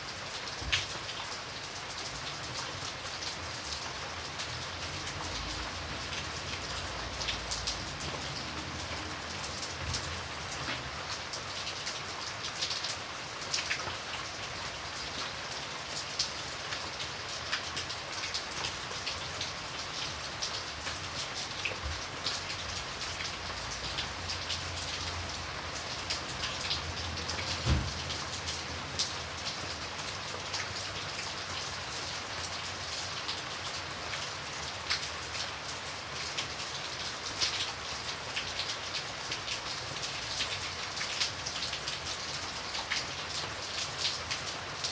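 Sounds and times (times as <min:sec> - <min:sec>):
rain on a hard surface: 0:00.0 - 0:44.9.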